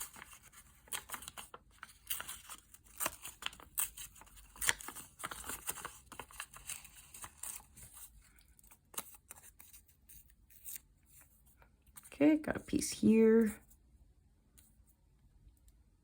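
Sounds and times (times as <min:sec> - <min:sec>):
paper rustling by hand: 0:00.0 - 0:12.2.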